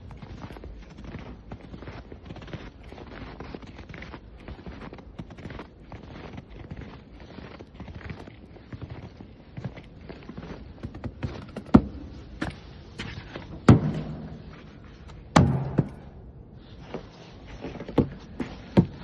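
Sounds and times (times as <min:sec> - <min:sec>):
heavy thuds: 0:11.4 - 0:17.1.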